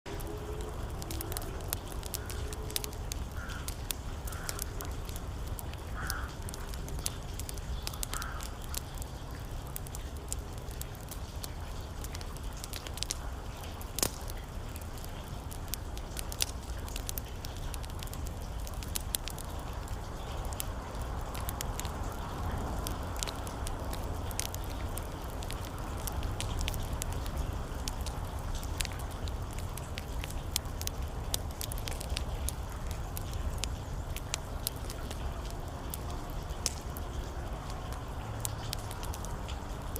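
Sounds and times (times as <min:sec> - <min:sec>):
rain: 0:00.0 - 0:39.9
wood fire crackling and popping: 0:00.1 - 0:39.9
crow cawing: 0:02.2 - 0:02.5, 0:03.4 - 0:04.8, 0:06.0 - 0:06.4, 0:08.1 - 0:08.6.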